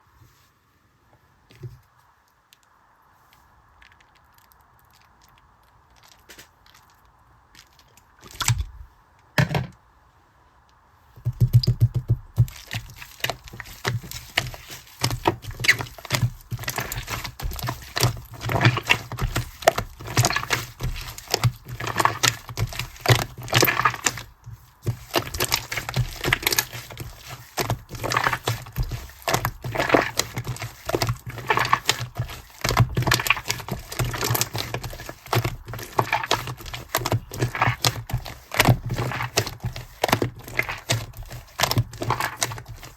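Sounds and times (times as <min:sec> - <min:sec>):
slime crackling and popping: 0:12.4 - 0:42.9.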